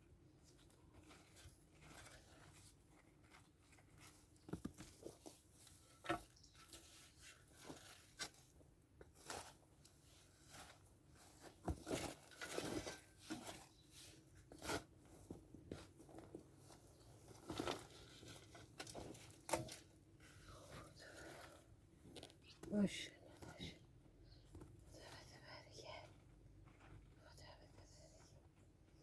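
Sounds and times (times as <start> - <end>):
soil crunching and scraping: 0.6 - 15.0.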